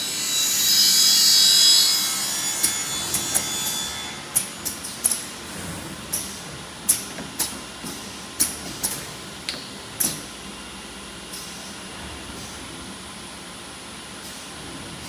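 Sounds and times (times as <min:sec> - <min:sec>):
pneumatic clacks with hiss: 0:02.6 - 0:10.4, 0:11.2 - 0:12.9, 0:14.2 - 0:15.0.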